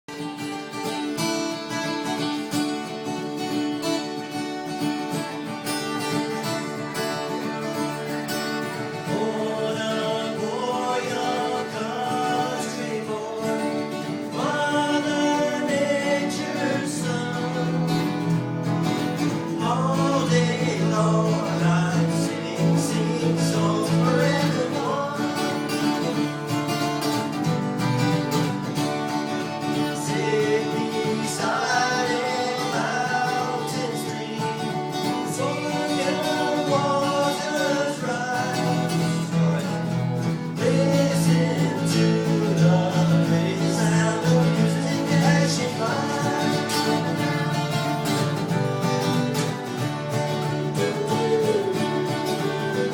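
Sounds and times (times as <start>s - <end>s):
acoustic guitar: 0.0s - 52.9s
person singing: 8.7s - 18.4s, 19.0s - 26.8s, 29.6s - 52.9s.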